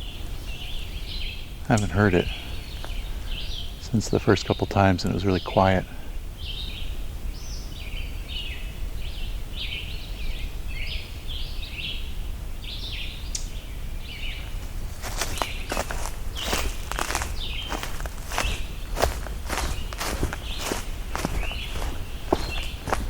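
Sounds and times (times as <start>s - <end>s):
footsteps crunching through vegetation: 14.3s - 23.0s.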